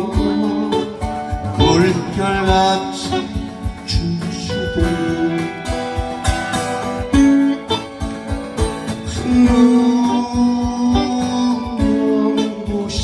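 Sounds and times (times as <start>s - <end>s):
person singing: 0.0s - 6.2s, 8.9s - 13.0s
acoustic guitar strumming: 0.0s - 13.0s.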